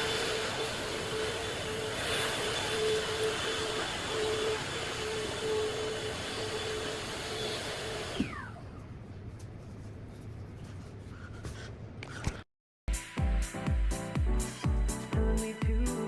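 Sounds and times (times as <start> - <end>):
vacuum cleaner whine: 0.0 - 9.0
dance music with heavy beat: 12.9 - 16.0.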